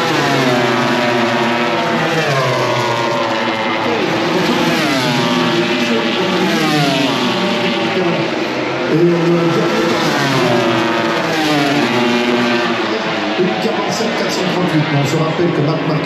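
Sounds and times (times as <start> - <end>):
racing motorcycles at high revs: 0.0 - 15.8.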